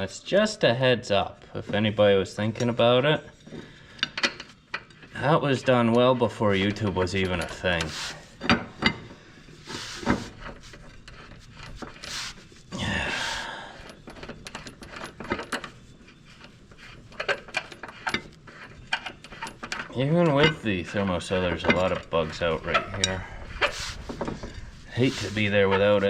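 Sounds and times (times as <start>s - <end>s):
metal tools clinking: 3.4s - 9.1s, 12.8s - 26.0s.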